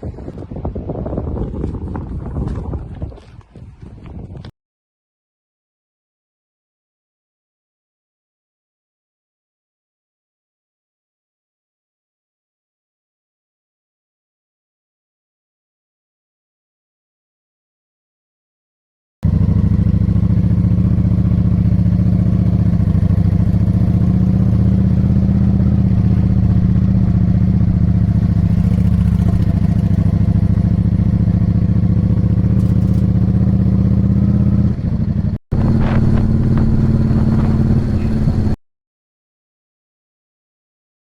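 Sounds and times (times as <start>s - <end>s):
motorcycle engine running: 19.2s - 38.6s.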